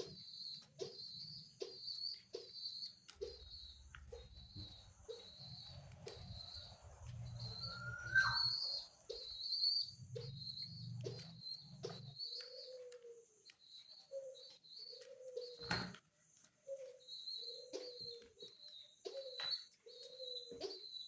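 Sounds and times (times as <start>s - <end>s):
pigeon chick squeaking: 0.0s - 13.2s.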